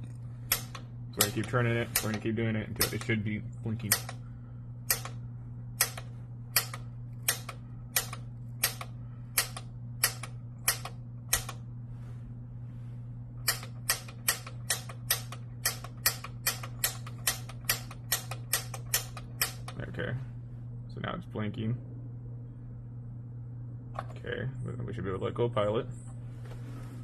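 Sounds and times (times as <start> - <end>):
steady low hum: 0.0 - 27.0
piezo sparker clicks: 0.5 - 2.2, 2.8 - 3.2, 3.8 - 4.2, 4.8 - 5.2, 5.8 - 11.6, 13.4 - 19.8.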